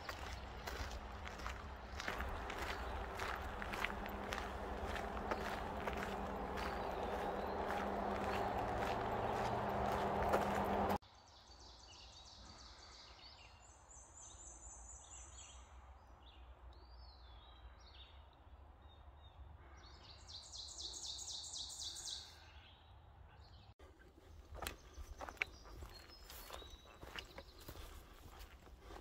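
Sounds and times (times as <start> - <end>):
footsteps on dirt trail: 0.0 - 11.0, 24.0 - 29.0
songbirds singing: 0.0 - 29.0.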